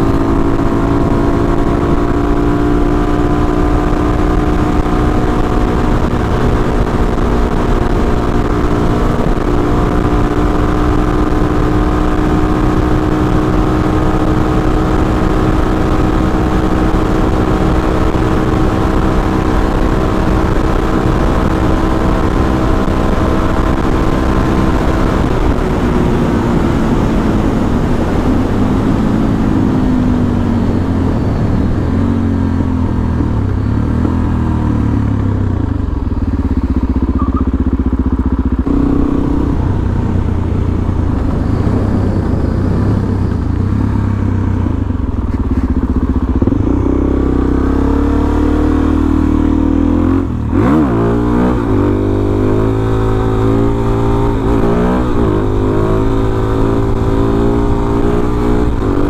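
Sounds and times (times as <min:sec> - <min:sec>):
motorcycle engine revving: 0:00.0 - 0:59.0
wind rush: 0:00.0 - 0:59.0.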